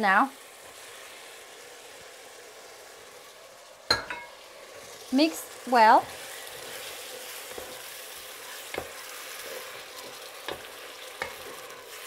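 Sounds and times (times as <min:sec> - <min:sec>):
food sizzling in a pot: 0:00.0 - 0:12.0.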